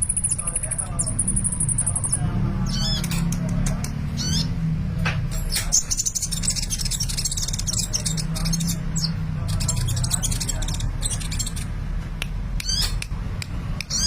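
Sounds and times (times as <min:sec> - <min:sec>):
bird singing high trills: 0:04.2 - 0:04.5.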